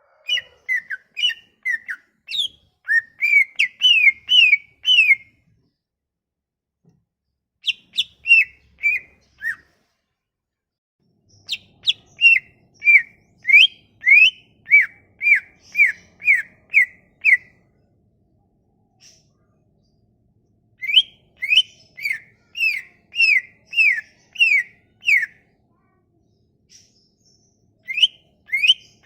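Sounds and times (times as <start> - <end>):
bird singing whistled notes: 0.3 - 5.3, 7.6 - 9.7, 11.4 - 17.5, 20.8 - 25.4, 27.8 - 29.0.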